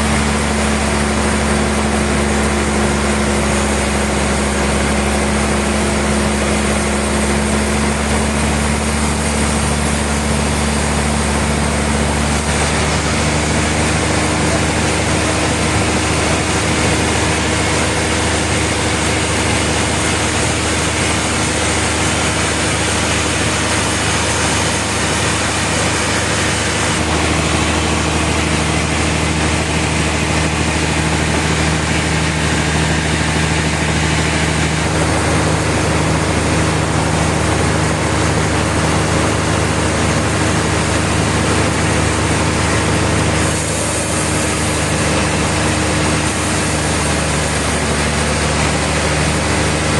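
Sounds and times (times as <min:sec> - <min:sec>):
sawmill machinery running: 0:00.0 - 0:49.9.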